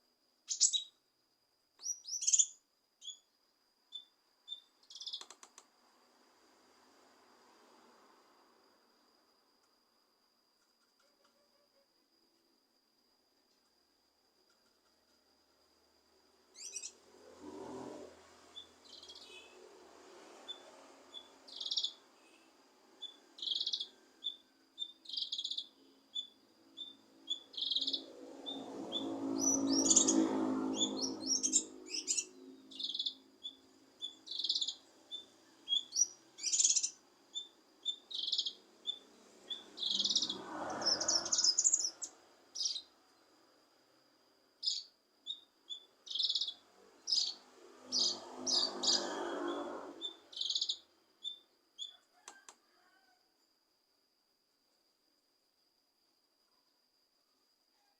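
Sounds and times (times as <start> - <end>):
bird chirping and trilling: 0.5 - 1.0, 1.8 - 3.2, 3.9 - 5.3, 16.6 - 17.0, 18.5 - 19.6, 20.5 - 22.4, 23.0 - 42.9, 44.6 - 51.9.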